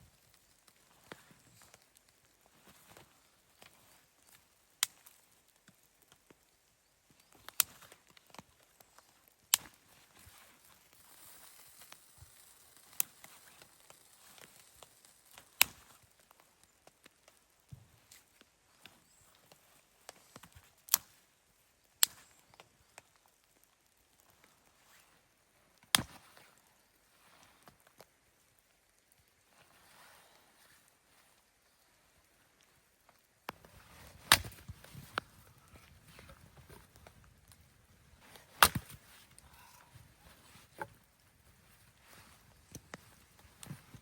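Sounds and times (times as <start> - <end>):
sharp cracks and knocks: 7.3 - 18.2, 25.8 - 26.5, 33.2 - 37.6, 38.2 - 41.0.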